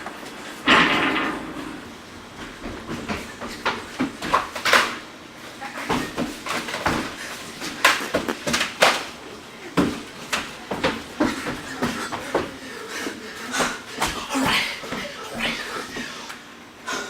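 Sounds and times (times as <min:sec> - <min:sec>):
footsteps knocking and scuffing: 0:02.3 - 0:12.6.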